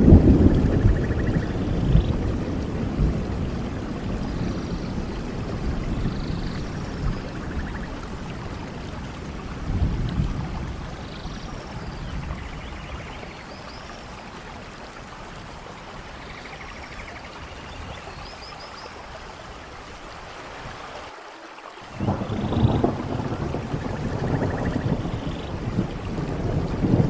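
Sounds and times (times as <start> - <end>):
thunder rumble: 0.0 - 13.4, 21.9 - 27.0
steady rain: 0.0 - 27.0.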